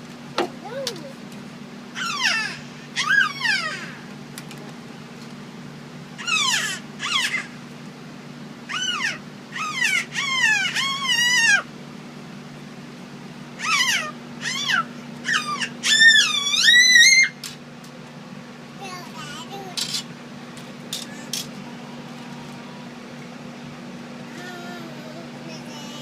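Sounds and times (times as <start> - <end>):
child squealing: 2.0 - 4.0, 6.2 - 7.5, 8.7 - 11.6, 13.6 - 17.4.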